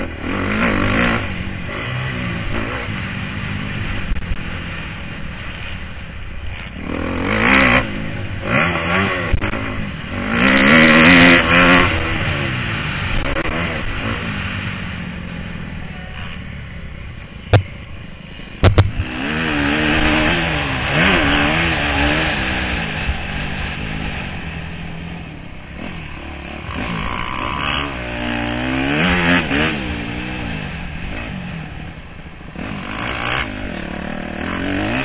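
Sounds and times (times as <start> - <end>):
motocross bike engine revving: 0.0 - 5.6, 6.5 - 17.8, 18.6 - 35.0
sharp knocks: 17.5 - 17.8, 18.6 - 19.0.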